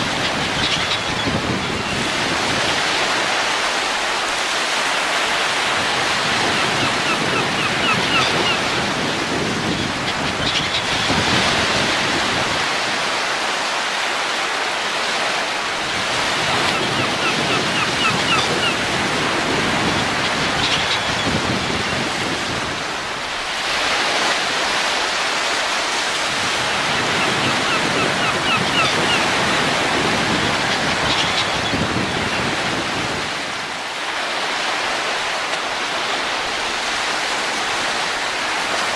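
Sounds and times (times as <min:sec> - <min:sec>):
wind blowing in gusts: 0:00.0 - 0:38.9.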